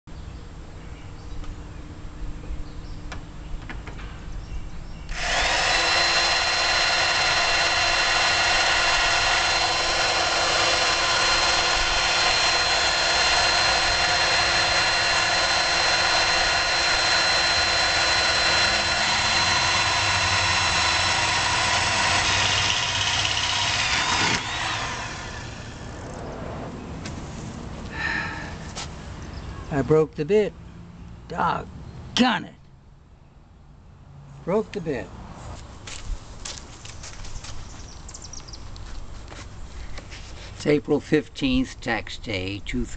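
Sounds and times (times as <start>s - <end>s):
electric drill whining into metal: 5.1s - 26.1s.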